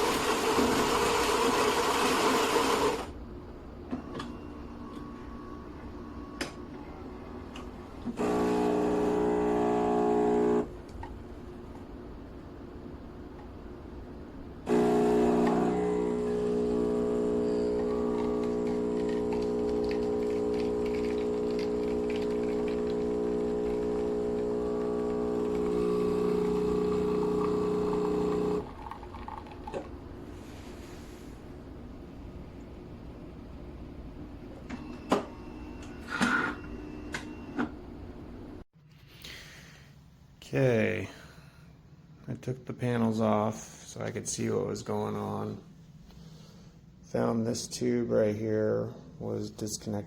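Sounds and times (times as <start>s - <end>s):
espresso machine pump humming: 0.0s - 3.1s, 8.1s - 10.7s, 14.7s - 29.9s.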